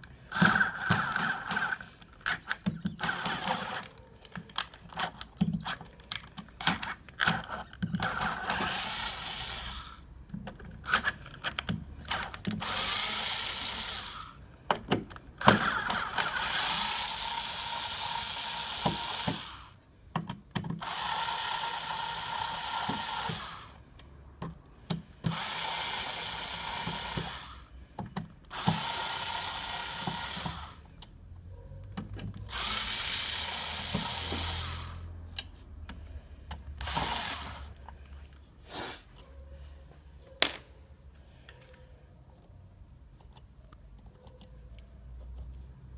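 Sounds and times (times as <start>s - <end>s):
power drill whining: 0.3s - 3.9s, 7.2s - 10.0s, 12.0s - 14.4s, 15.4s - 19.8s, 20.8s - 23.8s, 25.2s - 27.7s, 28.5s - 30.9s, 32.5s - 35.1s, 36.8s - 37.8s.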